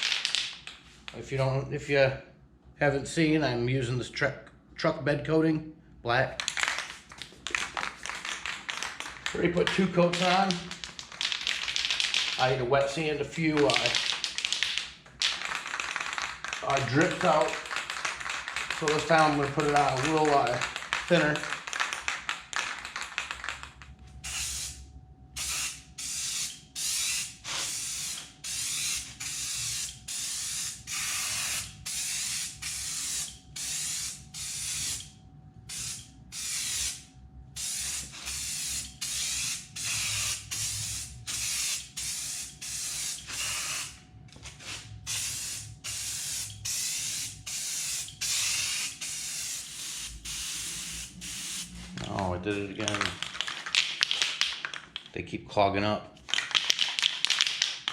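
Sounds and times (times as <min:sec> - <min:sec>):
aerosol spray can hissing: 0:24.2 - 0:24.8, 0:25.4 - 0:35.1, 0:35.7 - 0:37.0, 0:37.6 - 0:44.0, 0:44.6 - 0:51.8.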